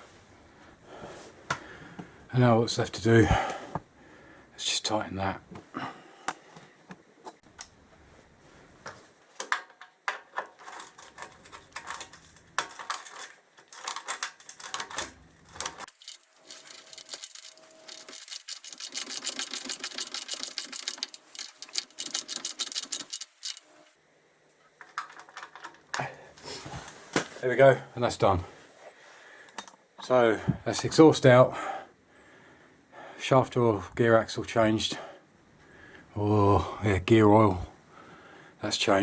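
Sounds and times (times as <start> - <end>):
ratchet spanner clicking: 15.9 - 23.7.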